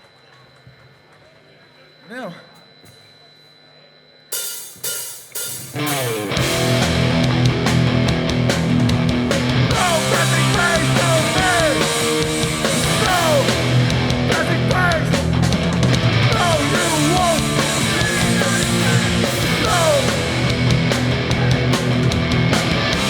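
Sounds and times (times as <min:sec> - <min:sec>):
distorted guitars and bass chords: 0:05.5 - 0:23.0
sliding guitar notes: 0:05.8 - 0:23.0.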